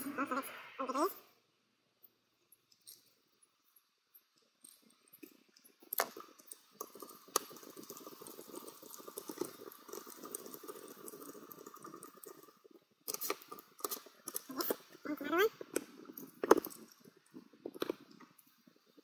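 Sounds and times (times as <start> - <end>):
greased parts crackling and rubbing: 4.6 - 19.0.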